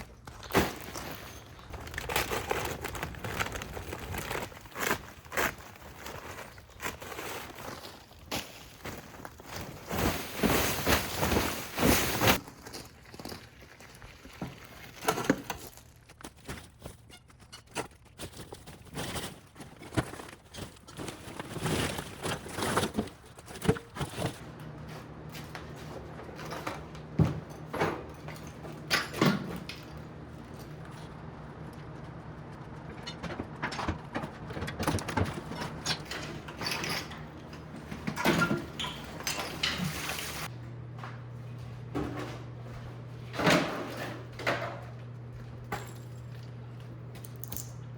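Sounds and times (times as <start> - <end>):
debris scraping and rustling: 0.0 - 40.5.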